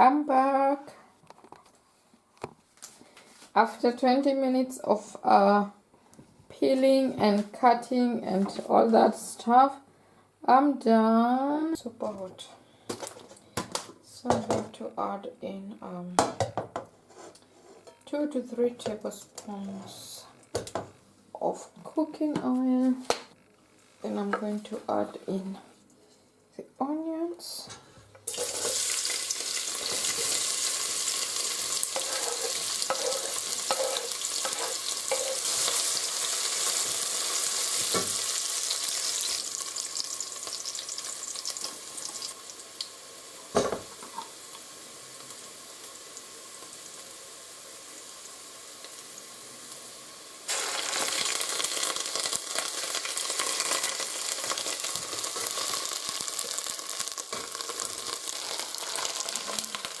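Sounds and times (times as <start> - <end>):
onions sizzling in oil: 28.2 - 60.0.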